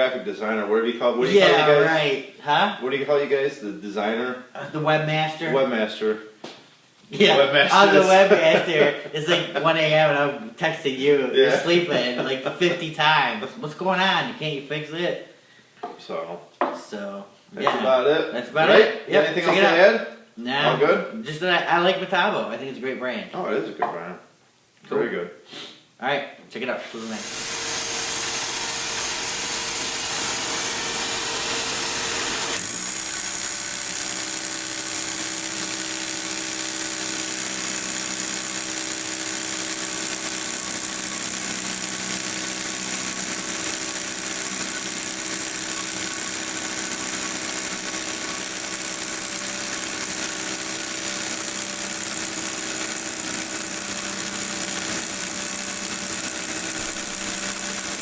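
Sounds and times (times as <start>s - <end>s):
electric power tool motor running: 26.9s - 58.0s.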